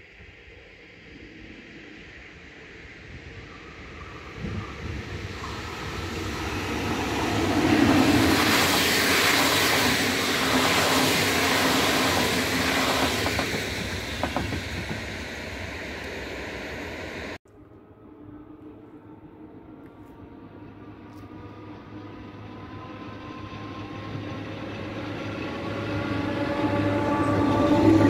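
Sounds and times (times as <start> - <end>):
train wheels rushing on rails: 3.2 - 17.4, 21.3 - 28.0.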